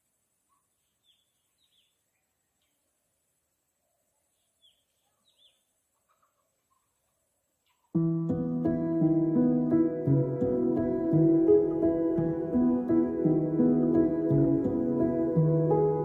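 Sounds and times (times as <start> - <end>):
faint bird chirps: 0.1 - 8.0.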